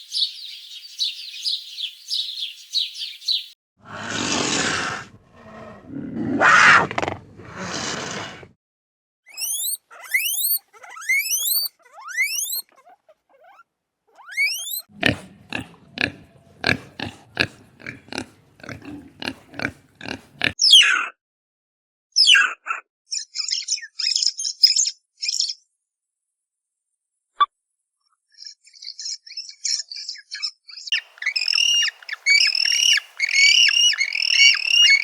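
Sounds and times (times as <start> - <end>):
animal grunts: 3.8 - 8.5, 14.9 - 20.6
rising whistled animal calls: 9.3 - 12.7, 14.2 - 14.9, 30.9 - 35.0
squeaky chattering calls: 9.3 - 13.6, 14.2 - 14.9, 30.9 - 35.0.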